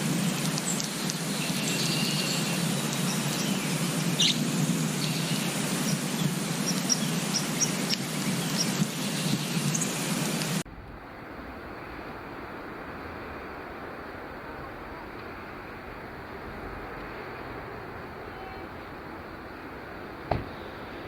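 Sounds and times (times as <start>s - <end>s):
small songbirds chirping: 0.0s - 10.6s
steady noisy background: 0.0s - 16.9s
dull steady hiss: 0.0s - 21.0s.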